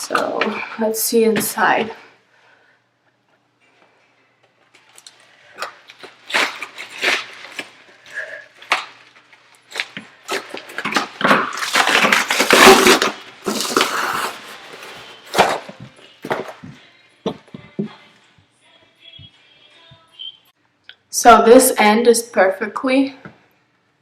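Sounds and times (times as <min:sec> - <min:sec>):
packaging crinkling and tearing: 0:04.7 - 0:15.7.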